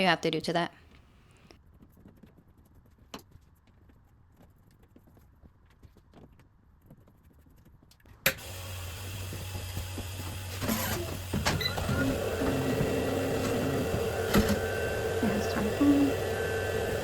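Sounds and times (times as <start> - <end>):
printer motor whirs and clicks: 8.3 - 17.0
printer humming: 8.4 - 17.0.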